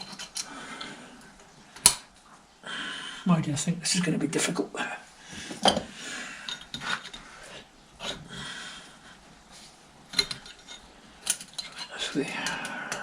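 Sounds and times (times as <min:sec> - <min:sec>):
metal parts scraping and rubbing: 0:00.0 - 0:00.6, 0:06.5 - 0:08.2, 0:10.1 - 0:13.0.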